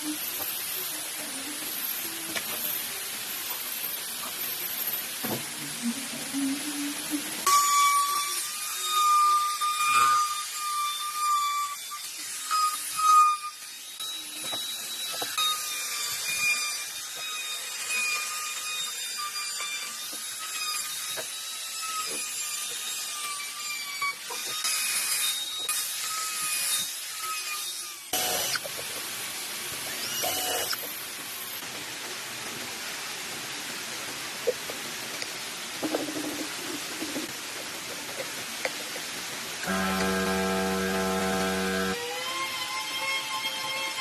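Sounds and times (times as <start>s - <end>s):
power tool motor whine on wood: 28.0s - 28.7s, 29.9s - 31.0s, 39.6s - 43.5s.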